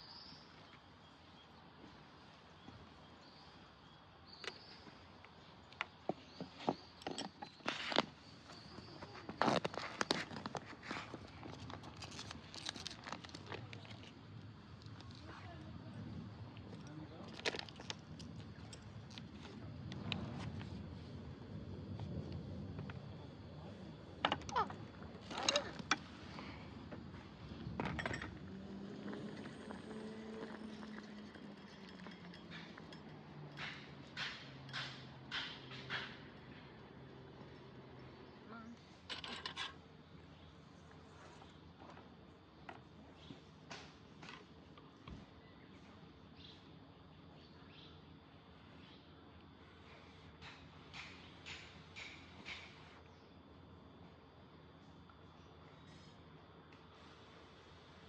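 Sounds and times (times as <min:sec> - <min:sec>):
cooking gear clinking: 0:30.4 - 0:34.9.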